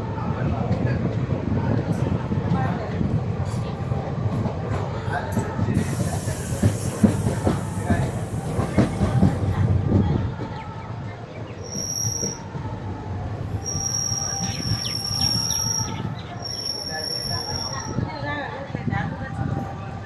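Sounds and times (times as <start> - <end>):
train wheels knocking over track: 5.3 - 9.6
high steady wheel squeal: 11.6 - 12.6, 13.4 - 18.0.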